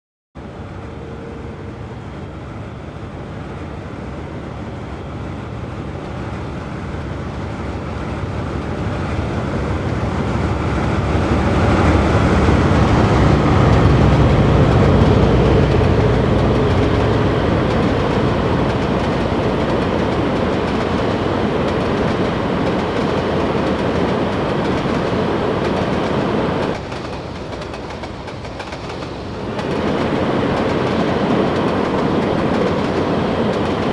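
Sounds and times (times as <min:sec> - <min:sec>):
train running on rails: 0:00.4 - 0:33.9.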